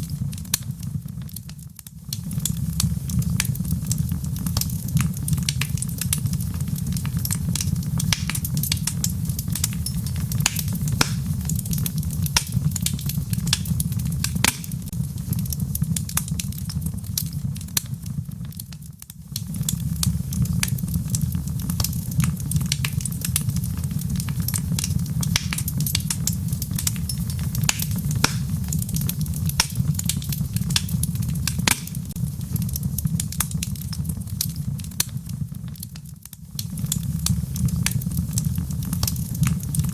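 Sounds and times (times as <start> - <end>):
log fire crackling: 0.0 - 39.9.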